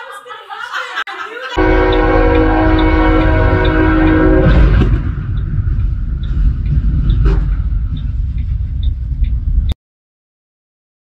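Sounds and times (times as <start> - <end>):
loud multi-tone horn: 1.6 - 5.4
faint regular ticking: 1.6 - 9.8
large vehicle low rumble: 1.6 - 9.8.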